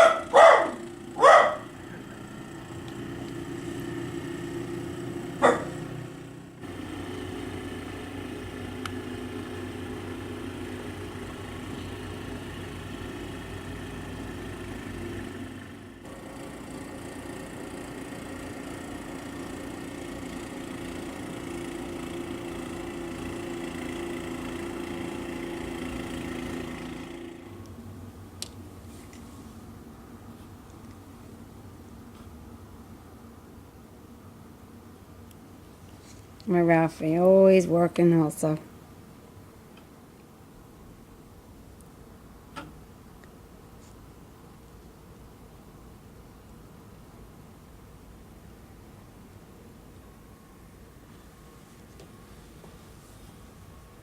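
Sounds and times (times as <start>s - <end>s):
dog barking: 0.0s - 1.7s, 5.4s - 5.9s
engine running: 0.0s - 30.9s.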